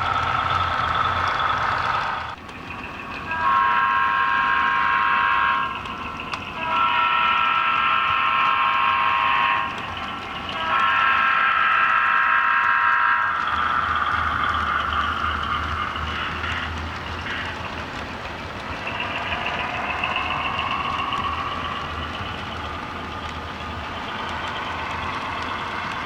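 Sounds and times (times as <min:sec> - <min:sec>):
model locomotive horn blasts: 0:03.3 - 0:05.8, 0:06.6 - 0:09.8, 0:10.5 - 0:13.3
low pulsing engine rumble: 0:13.3 - 0:26.0.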